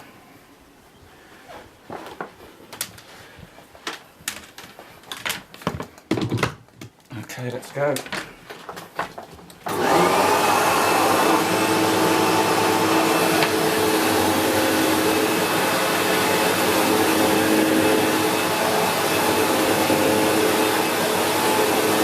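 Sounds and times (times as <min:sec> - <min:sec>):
vacuum cleaner motor whine: 0:09.6 - 0:22.0.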